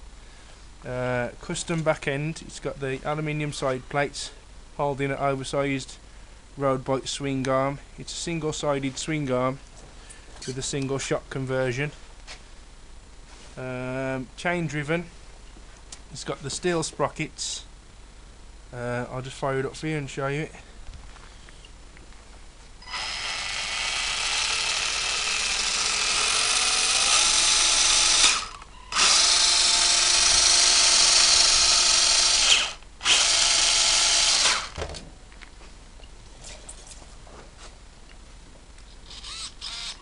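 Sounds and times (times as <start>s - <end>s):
electric motor whining: 22.8s - 34.8s, 39.0s - 40.0s.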